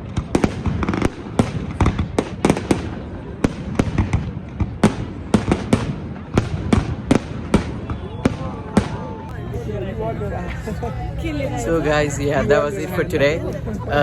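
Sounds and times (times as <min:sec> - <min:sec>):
fireworks bursting: 0:00.0 - 0:09.2
continuous low rumble: 0:00.0 - 0:14.0.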